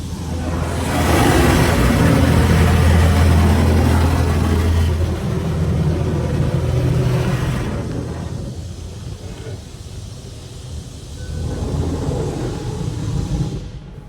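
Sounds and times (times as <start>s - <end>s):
car engine running: 0.0s - 8.8s
loud even hiss: 0.0s - 14.0s.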